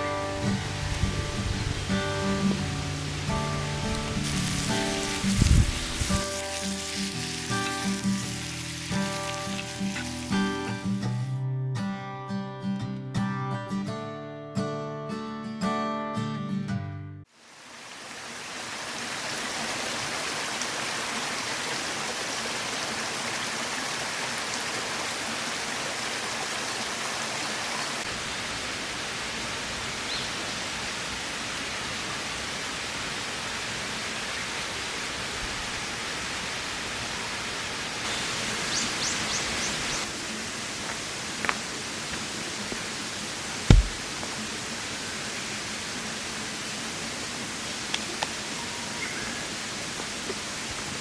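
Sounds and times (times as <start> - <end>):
steady rushing outdoor noise: 0.0 - 10.9, 17.4 - 51.0
sharp knocks: 43.7 - 44.1.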